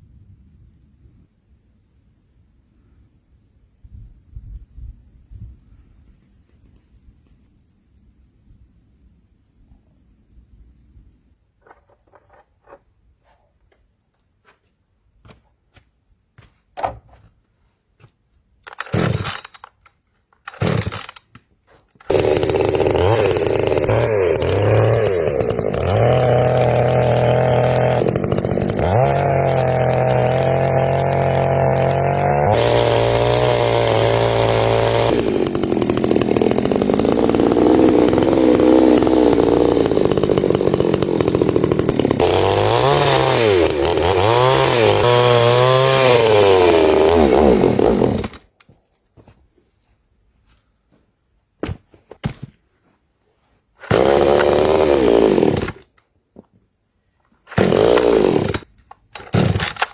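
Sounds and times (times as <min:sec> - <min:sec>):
chainsaw engine revving: 0:18.7 - 0:19.7, 0:20.5 - 0:21.2, 0:22.0 - 0:48.5, 0:53.8 - 0:55.9, 0:57.5 - 0:59.9.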